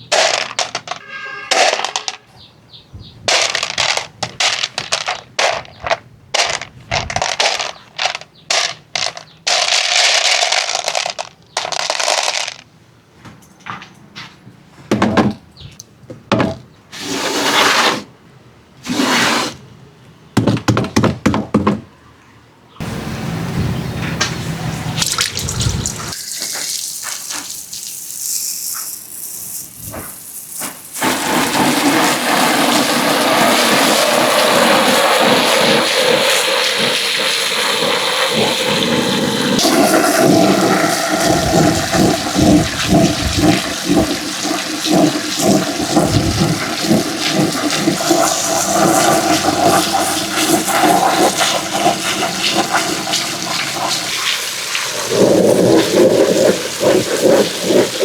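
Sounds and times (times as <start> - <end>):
marbles rolling down a marble run: 0.1 - 2.2, 3.3 - 12.6, 26.1 - 54.1.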